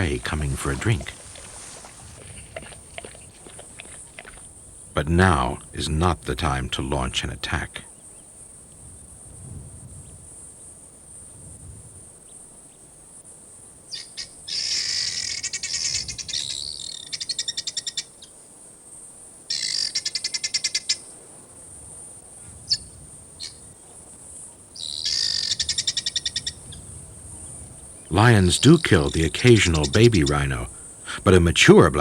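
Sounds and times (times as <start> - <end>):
bird chattering calls: 0.0 - 4.5, 24.8 - 26.8, 27.4 - 32.0
steady high hiss: 0.0 - 7.9, 18.4 - 32.0.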